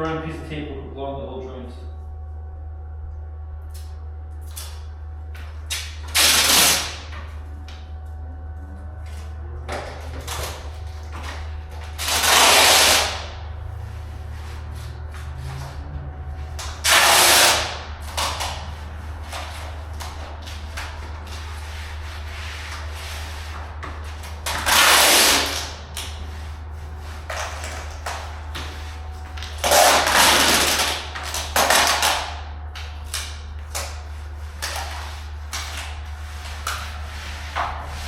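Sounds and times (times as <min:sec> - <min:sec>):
steady low hum: 0:00.0 - 0:38.0
tape ripping off roll: 0:05.7 - 0:07.3, 0:10.2 - 0:13.4, 0:16.6 - 0:21.5, 0:23.5 - 0:26.2, 0:29.4 - 0:34.0.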